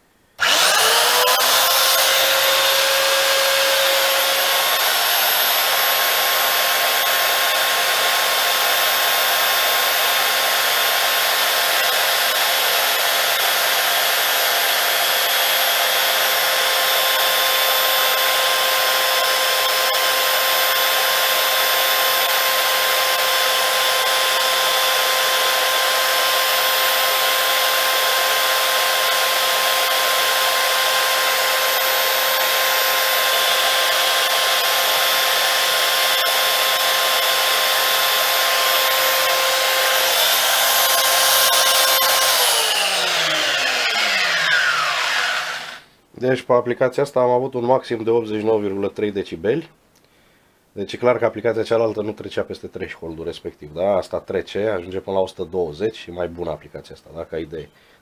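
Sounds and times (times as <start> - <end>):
electric belt sander running: 0.4 - 45.9.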